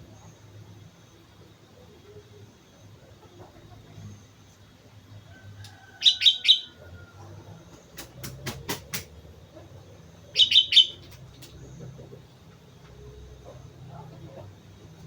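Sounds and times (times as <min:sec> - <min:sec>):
sharp clicks: 0:07.8 - 0:09.2, 0:10.9 - 0:11.7.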